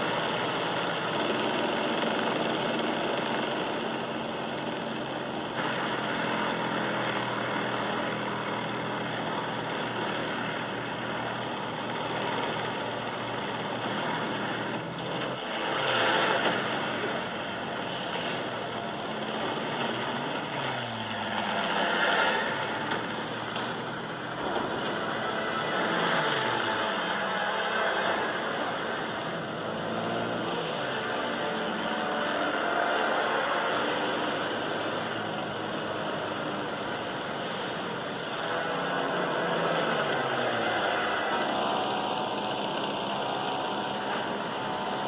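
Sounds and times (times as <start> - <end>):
propeller plane engines droning: 0.0 - 45.0.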